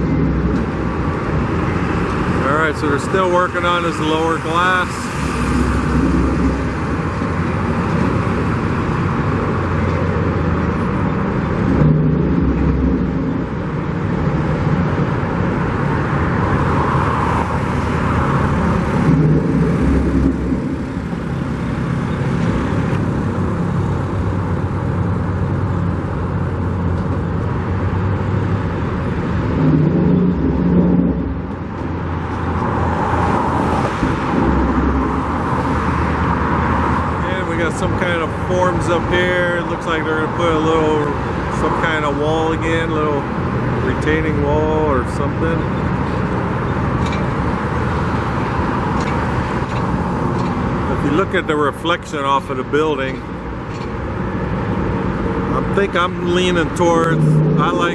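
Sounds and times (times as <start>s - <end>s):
road traffic: 0.0s - 57.9s
vehicles passing close by: 0.0s - 57.9s.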